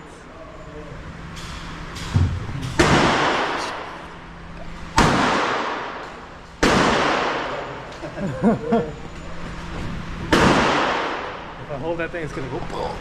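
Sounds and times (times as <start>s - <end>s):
shotgun blasts echoing: 2.8s - 3.6s, 5.0s - 6.0s, 6.6s - 7.6s, 10.3s - 11.4s.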